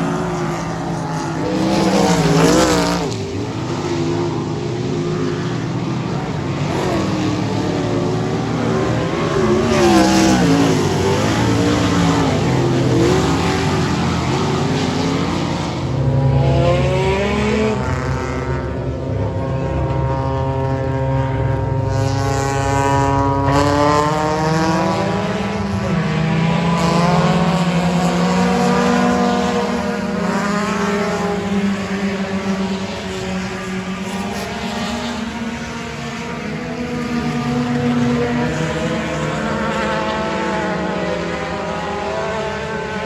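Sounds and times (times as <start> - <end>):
race car engines accelerating: 0.0 - 43.0.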